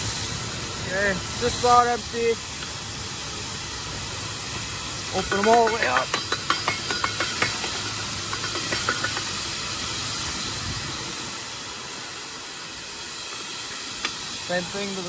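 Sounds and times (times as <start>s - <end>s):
grain pouring rushing hiss: 0.0s - 15.0s.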